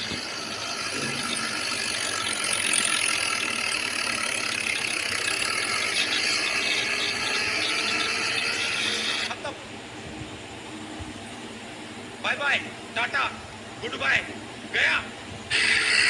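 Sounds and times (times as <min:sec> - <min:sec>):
tractor running: 0:00.0 - 0:11.3.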